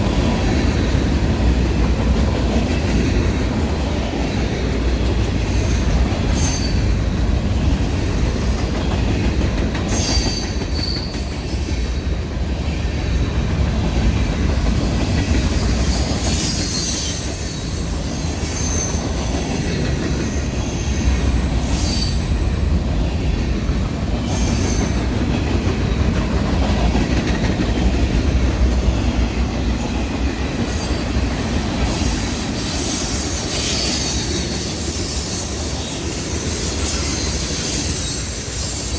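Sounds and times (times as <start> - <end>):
train cars rumbling on track: 0.0 - 38.9
high wheel squeals: 5.4 - 8.8, 9.9 - 11.9, 15.4 - 22.4, 24.2 - 25.2, 30.7 - 38.9.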